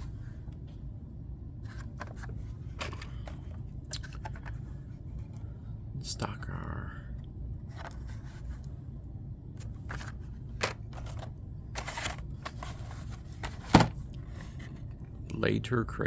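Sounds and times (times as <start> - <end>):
plastic blister packs clicking and rustling: 1.7 - 4.6, 9.6 - 14.2.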